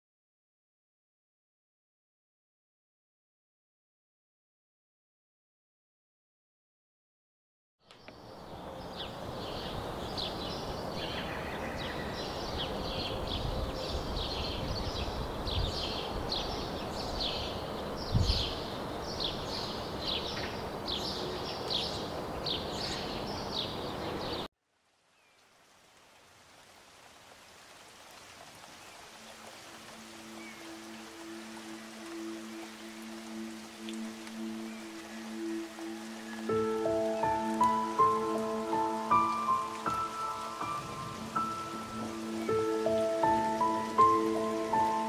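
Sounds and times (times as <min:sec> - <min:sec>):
bird chirping: 0:07.8 - 0:24.5
faint hiss: 0:24.6 - 0:45.0.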